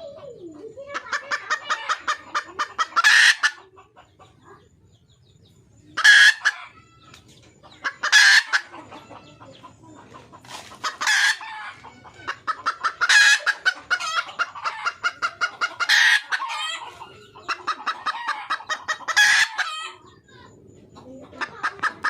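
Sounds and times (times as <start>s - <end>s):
junglefowl hen clucking: 0.0s - 22.0s
hen cackling call: 1.0s - 3.6s, 6.0s - 6.7s, 17.5s - 20.0s.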